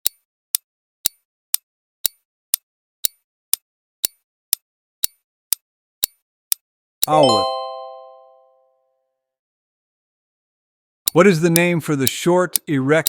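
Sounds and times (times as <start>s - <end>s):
countdown timer ticking: 7.0s - 8.6s, 11.1s - 13.0s.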